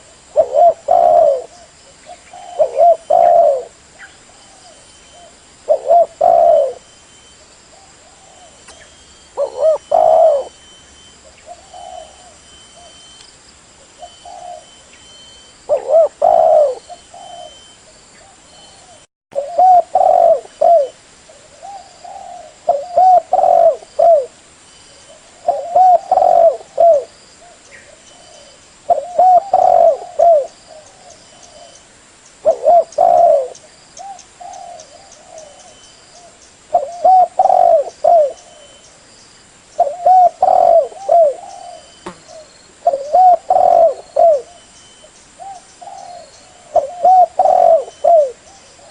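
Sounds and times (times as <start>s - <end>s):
dove cooing: 0.0s - 6.9s, 7.7s - 13.1s, 13.8s - 24.4s, 25.0s - 31.8s, 32.4s - 38.8s, 39.8s - 44.8s, 45.4s - 48.9s
faint high bird chirps: 0.4s - 13.4s, 14.0s - 21.0s.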